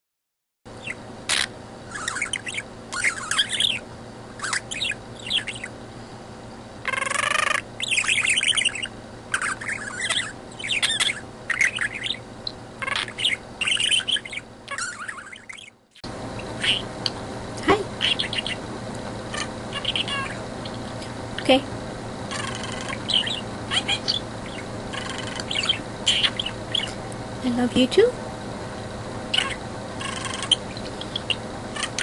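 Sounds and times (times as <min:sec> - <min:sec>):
budgerigar chattering: 0:00.8 - 0:03.8, 0:04.4 - 0:05.8, 0:06.8 - 0:15.8, 0:16.4 - 0:16.9, 0:18.0 - 0:18.7, 0:19.3 - 0:20.8, 0:22.3 - 0:27.0, 0:29.3 - 0:32.0.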